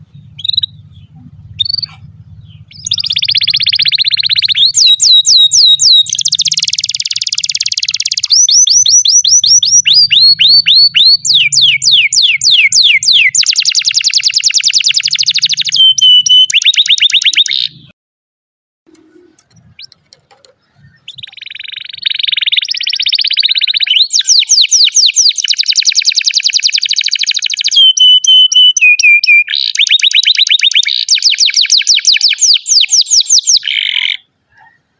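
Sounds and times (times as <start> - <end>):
canary singing trills: 0.0 - 17.9, 18.9 - 34.9.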